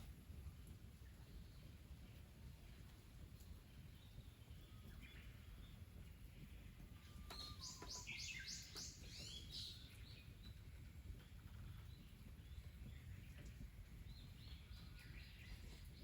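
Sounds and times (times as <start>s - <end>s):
small bird calling: 7.3s - 9.8s.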